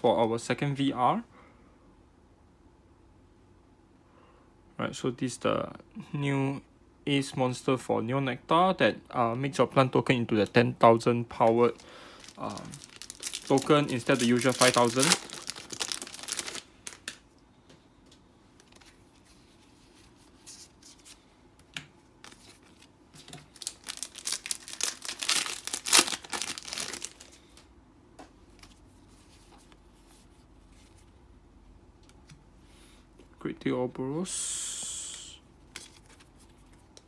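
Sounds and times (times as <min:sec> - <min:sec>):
foil wrapper crinkling and tearing: 0:11.4 - 0:17.2, 0:22.2 - 0:27.6.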